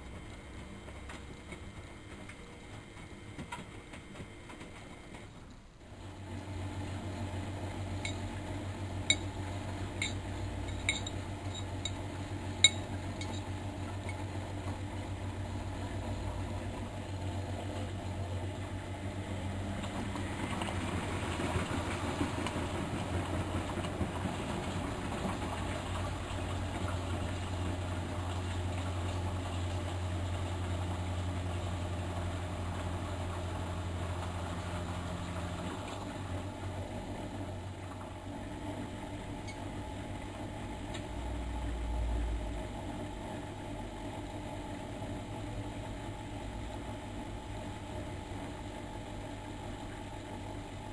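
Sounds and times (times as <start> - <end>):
washing machine motor hum: 0.0 - 50.9
water and laundry sloshing: 5.2 - 41.7.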